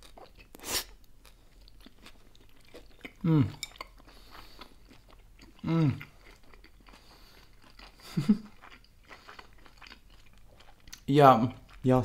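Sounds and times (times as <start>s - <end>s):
person chewing: 0.0s - 12.0s
person humming mmm: 3.2s - 3.7s, 5.6s - 6.2s.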